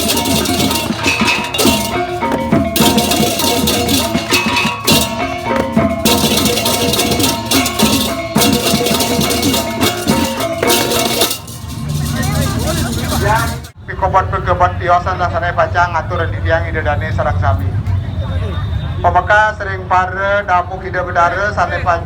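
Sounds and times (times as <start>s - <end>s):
clashing cymbals: 0.0s - 13.8s
fast drumming: 0.0s - 13.8s
ringing bronze tones: 0.0s - 13.8s.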